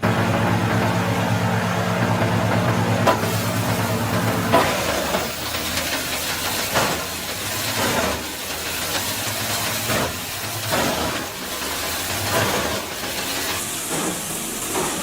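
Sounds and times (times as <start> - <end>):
wood chipper crunching branches: 0.0 - 14.3
wood chipper engine hum: 0.0 - 15.0.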